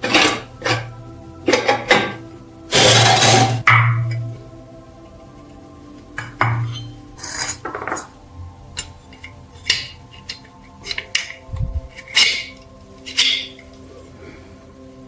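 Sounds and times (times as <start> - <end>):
faint background music: 0.0 - 15.0
metal parts clinking: 8.8 - 13.9.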